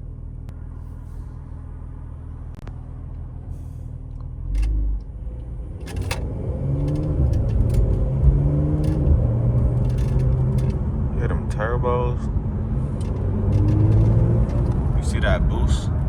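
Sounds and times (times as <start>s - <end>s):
car engine revving: 4.4s - 16.0s
sharp clicks: 5.8s - 10.8s.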